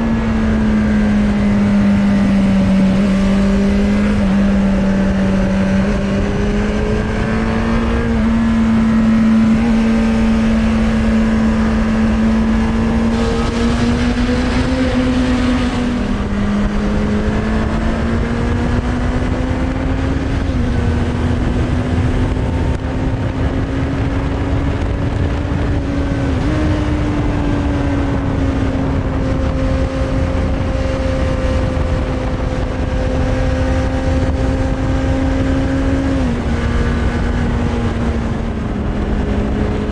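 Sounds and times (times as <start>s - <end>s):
motorcycle engine running: 0.0s - 39.9s
wind rush: 0.0s - 39.9s.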